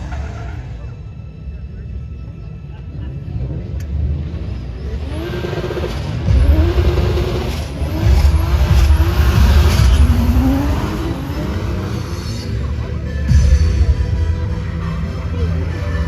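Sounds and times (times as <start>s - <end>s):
car engine revving hard: 3.5s - 13.3s.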